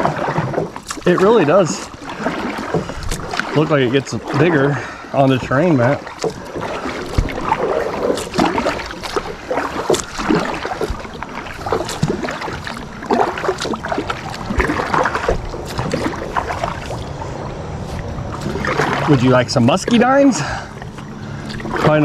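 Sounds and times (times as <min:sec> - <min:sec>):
water dripping: 0:00.0 - 0:17.2
paddle strokes splashing water: 0:00.0 - 0:22.0.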